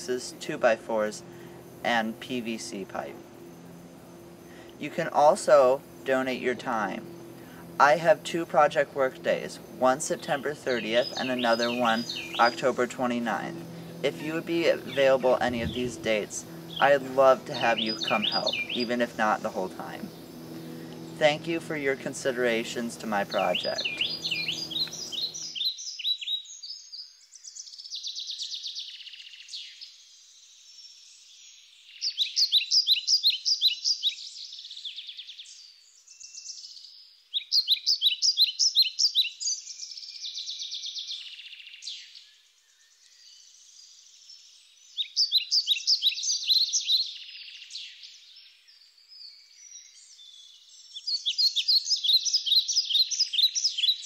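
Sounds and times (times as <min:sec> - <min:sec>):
songbird singing pulsed phrase: 0:00.0 - 0:54.0
soft high bird trills and calls: 0:17.6 - 0:19.0, 0:23.3 - 0:27.0, 0:31.9 - 0:43.5, 0:44.8 - 0:48.3, 0:49.4 - 0:54.0.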